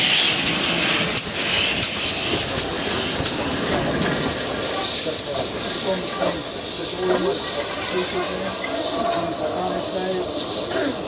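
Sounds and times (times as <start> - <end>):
steam train rumble and hiss: 0.0 - 11.0.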